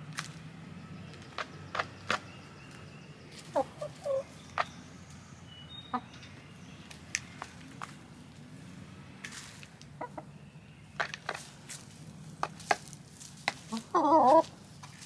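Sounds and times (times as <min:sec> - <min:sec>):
hens clucking: 0:01.0 - 0:15.0
loud wavering chicken call: 0:03.5 - 0:04.4.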